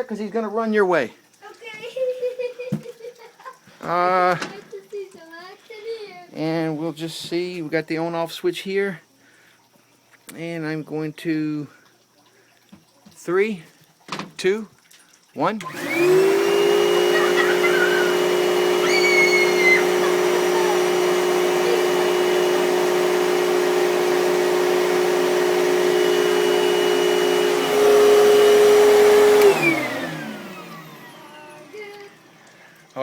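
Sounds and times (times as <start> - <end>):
vacuum cleaner running: 15.6 - 32.6.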